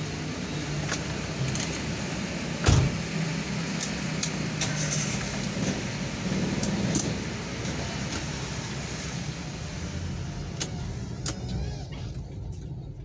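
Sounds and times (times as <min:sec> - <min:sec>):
car engine idling: 0:00.0 - 0:13.0
loud thump: 0:02.6 - 0:03.0.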